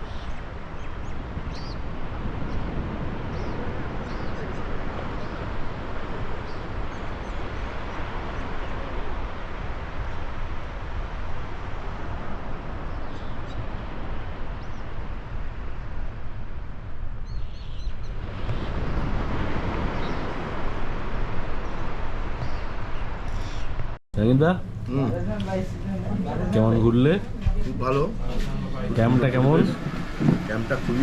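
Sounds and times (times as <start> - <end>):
birds chirping: 3.3 - 5.5, 21.6 - 31.0
loud rushing noise with rumble: 27.2 - 31.0.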